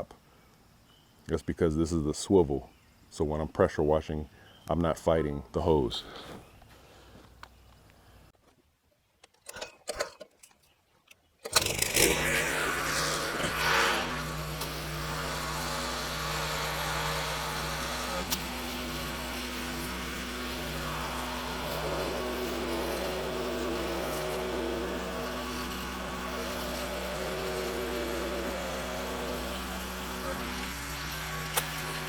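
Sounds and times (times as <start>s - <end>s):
pressure washer engine running: 11.5s - 32.0s.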